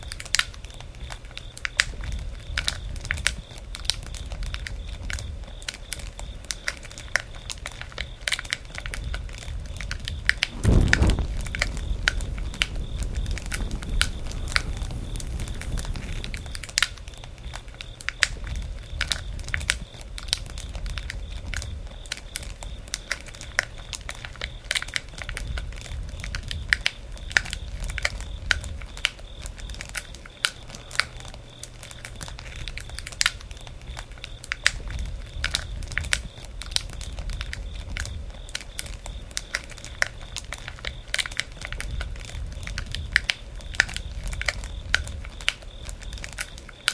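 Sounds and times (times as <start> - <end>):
wood fire crackling: 10.5 - 16.8.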